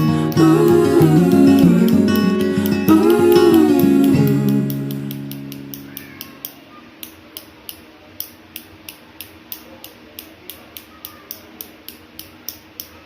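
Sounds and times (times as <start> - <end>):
guitar chord: 0.0 - 6.4.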